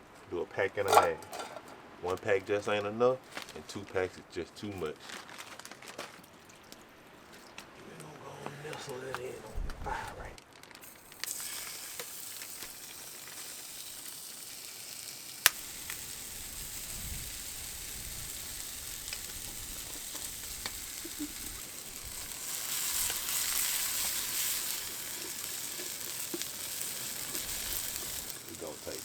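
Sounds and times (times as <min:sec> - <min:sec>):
food sizzling in a pot: 0:10.8 - 0:29.0.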